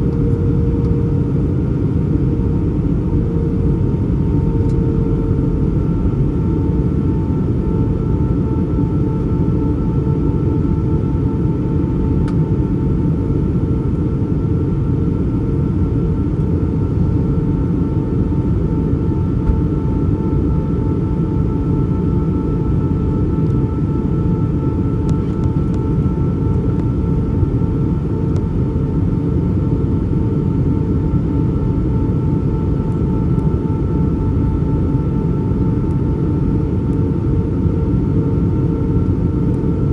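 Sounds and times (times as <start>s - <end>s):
airplane cabin engine rush: 0.0s - 39.9s.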